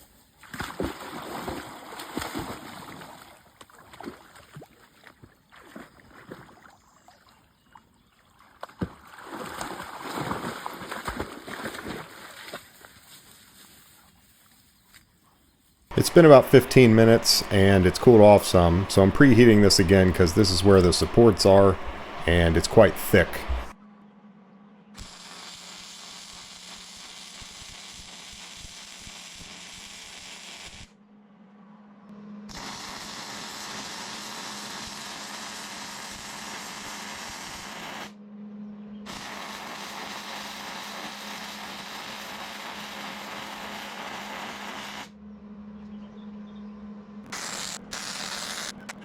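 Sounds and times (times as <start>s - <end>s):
arc welding: 15.9s - 23.8s, 25.0s - 30.9s, 32.5s - 38.1s, 39.1s - 45.1s, 47.3s - 49.0s
welder humming: 15.9s - 23.8s, 25.0s - 30.9s, 32.5s - 38.1s, 39.1s - 45.1s, 47.3s - 49.0s.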